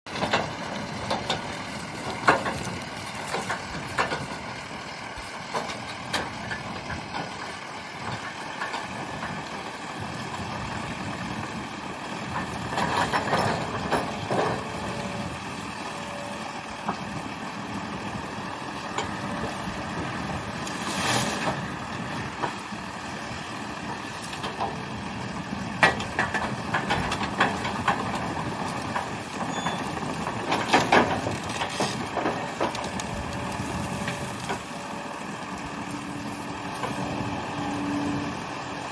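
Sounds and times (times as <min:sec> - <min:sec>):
excavator engine running: 0:00.1 - 0:38.9.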